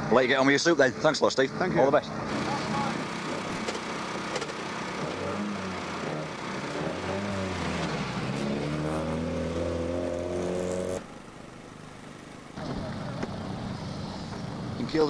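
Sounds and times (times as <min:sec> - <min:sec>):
rally car engine revving: 0:02.1 - 0:11.9.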